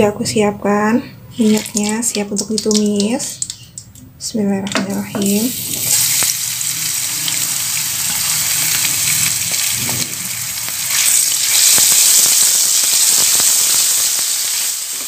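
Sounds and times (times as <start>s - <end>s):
paste sizzling in hot oil: 5.2s - 15.0s.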